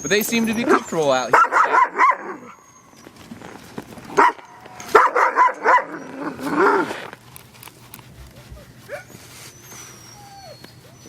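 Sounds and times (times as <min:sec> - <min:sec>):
dogs barking and yipping: 0:00.0 - 0:07.2, 0:08.0 - 0:11.0
dog howling call: 0:01.4 - 0:03.1.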